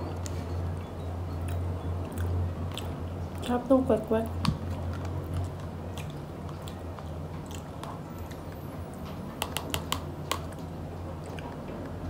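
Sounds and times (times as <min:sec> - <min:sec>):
person chewing: 0:01.4 - 0:03.6, 0:04.4 - 0:11.6.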